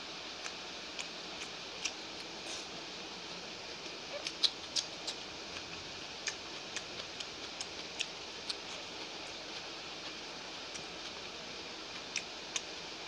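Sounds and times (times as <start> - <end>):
steady hiss: 0.0 - 13.0
chewing and mouth sounds: 4.1 - 11.2.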